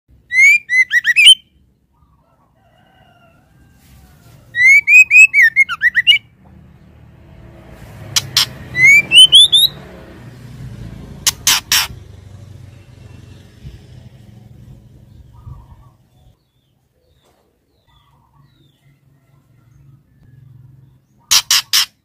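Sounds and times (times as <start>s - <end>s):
bird whistled call: 0.2s - 1.5s, 4.6s - 6.3s, 8.4s - 9.8s.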